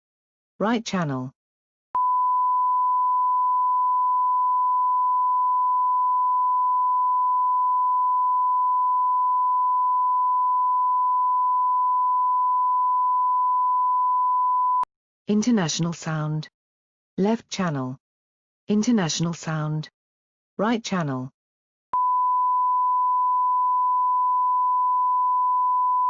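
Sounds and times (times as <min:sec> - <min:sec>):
sine wave test tone: 0:02.0 - 0:14.9, 0:22.0 - 0:26.0.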